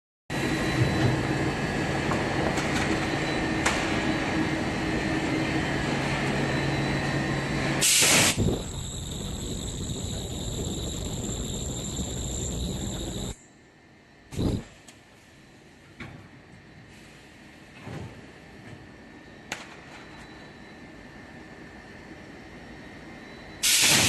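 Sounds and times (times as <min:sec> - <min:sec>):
high machine whine: 0:00.3 - 0:13.4, 0:14.2 - 0:14.9
machine hum: 0:04.5 - 0:13.4, 0:14.3 - 0:14.8
loud hiss: 0:07.8 - 0:13.4, 0:14.4 - 0:14.8, 0:23.6 - 0:24.0.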